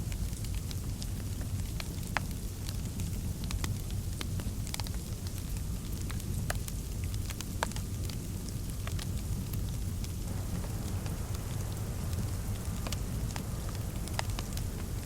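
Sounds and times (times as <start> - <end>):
low rumble of fire: 0.0 - 15.0
fire crackling and popping: 0.1 - 15.0
soft hiss: 8.0 - 15.0.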